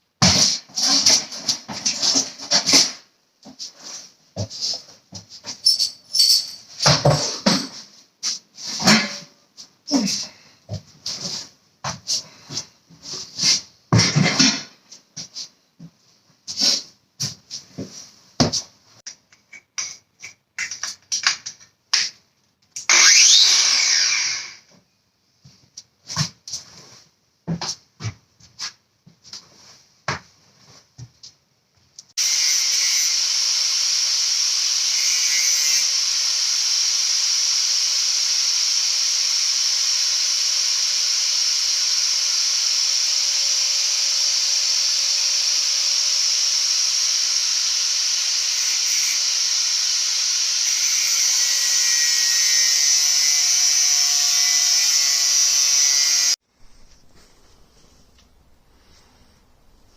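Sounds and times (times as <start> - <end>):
power tool cutting steel hissing: 22.9 - 24.6, 32.2 - 59.9.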